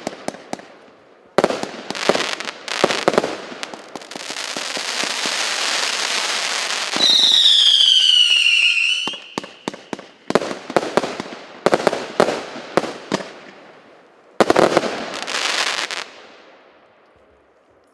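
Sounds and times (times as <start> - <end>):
firework crackling: 0.0 - 13.5, 14.4 - 16.3
firework whistle: 6.7 - 9.6.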